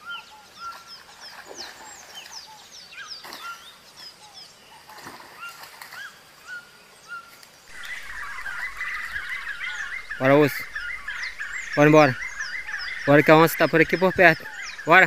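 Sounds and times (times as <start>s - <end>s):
birds chattering: 0.0s - 15.0s
birds whistling: 5.4s - 15.0s.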